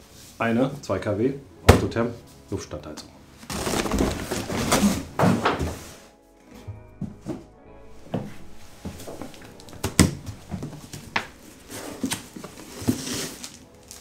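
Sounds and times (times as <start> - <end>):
packaging rustling: 3.5 - 5.2, 9.3 - 14.0.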